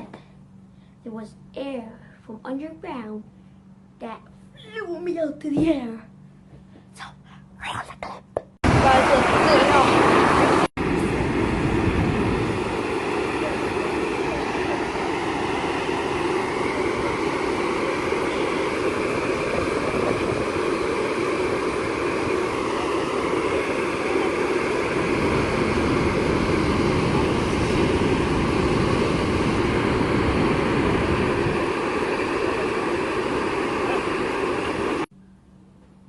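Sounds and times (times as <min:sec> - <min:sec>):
loud wind rush: 0:08.6 - 0:35.1.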